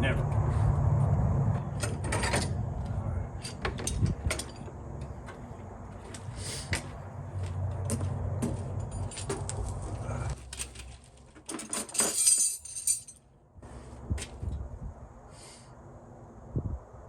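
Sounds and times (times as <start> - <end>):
metal hand tools clinking: 11.5 - 13.2.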